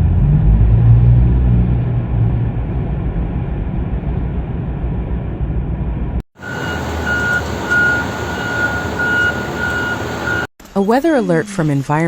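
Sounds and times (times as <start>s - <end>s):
engine rumble: 0.0s - 10.5s
low rumbling vehicle noise: 0.0s - 10.5s
reversing beeper: 6.4s - 10.5s.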